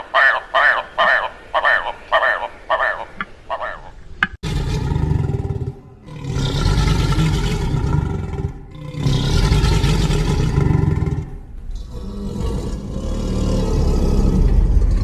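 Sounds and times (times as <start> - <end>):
deep rumbling dinosaur roars: 4.4 - 15.0.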